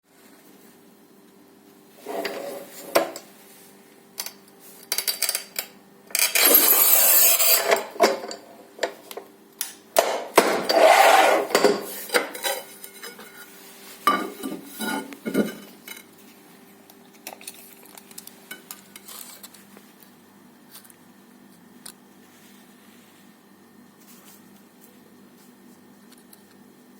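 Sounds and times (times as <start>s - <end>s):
tile cutter scraping: 6.2s - 8.0s, 10.5s - 11.9s.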